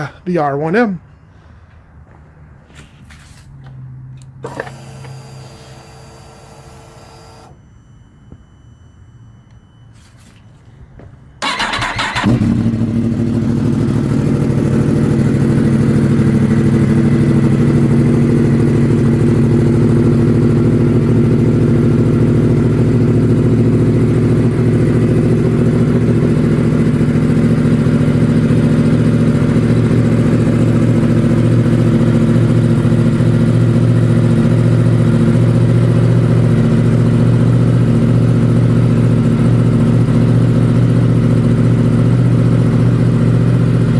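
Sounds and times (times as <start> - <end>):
motorcycle engine starter cranking: 11.4 - 12.8
motorcycle engine idling: 11.4 - 43.9.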